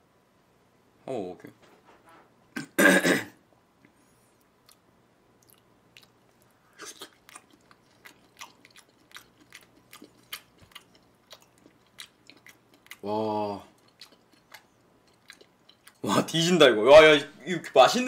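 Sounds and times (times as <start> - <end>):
person chewing raw meat: 4.4 - 16.1
loud mouth sound: 6.7 - 7.2.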